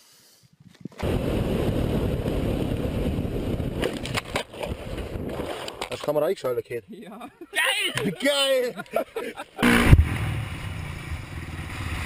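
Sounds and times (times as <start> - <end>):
wind: 0.0 - 12.0
dirt bike engine rumble: 9.6 - 12.0.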